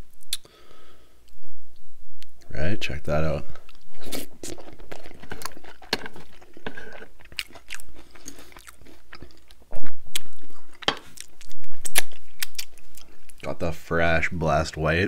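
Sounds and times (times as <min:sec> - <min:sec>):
crunchy chewing: 0:03.2 - 0:13.5.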